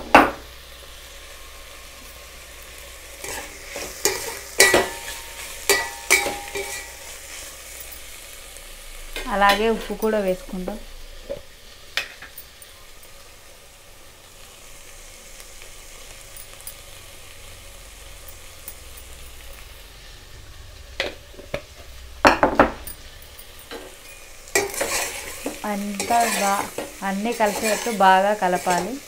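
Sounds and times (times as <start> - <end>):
vegetables sizzling in a pot: 0.0 - 29.0.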